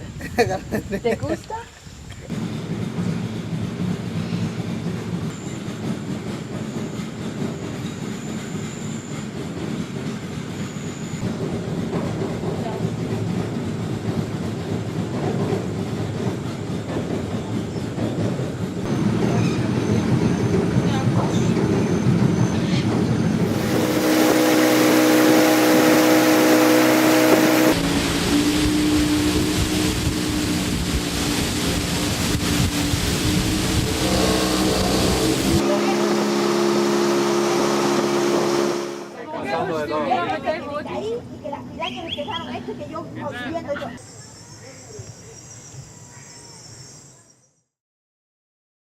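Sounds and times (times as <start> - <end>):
boat motor running: 18.2 - 39.2
rush of wind and water: 23.4 - 37.1.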